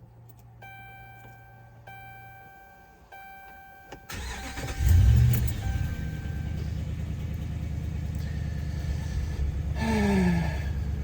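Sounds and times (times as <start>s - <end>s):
dashboard chime: 0.6s - 6.7s
engine cranking and idling: 3.9s - 11.0s.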